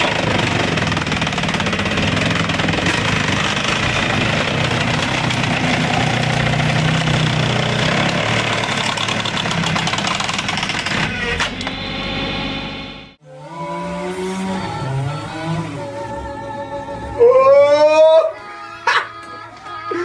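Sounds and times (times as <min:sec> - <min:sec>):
rapid rattling and clatter: 0:00.0 - 0:11.1
machine engine under load: 0:00.0 - 0:12.8
different engine sound: 0:00.0 - 0:17.1.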